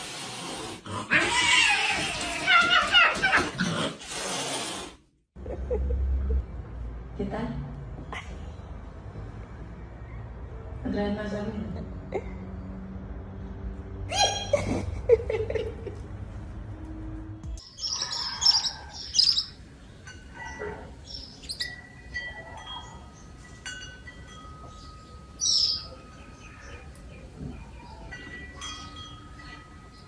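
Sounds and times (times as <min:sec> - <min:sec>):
high chirps and whistle-like notes: 0:17.6 - 0:19.6, 0:21.0 - 0:23.4, 0:24.6 - 0:27.0.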